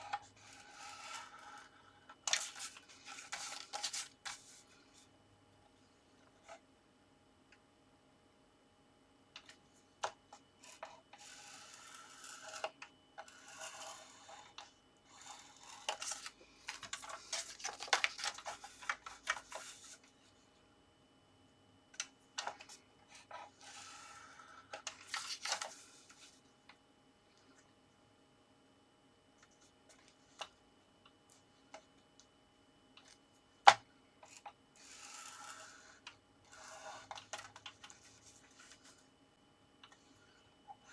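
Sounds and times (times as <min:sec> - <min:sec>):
scoring tool scraping card: 0:00.0 - 0:04.6, 0:10.6 - 0:20.1, 0:22.5 - 0:26.4, 0:34.2 - 0:39.0.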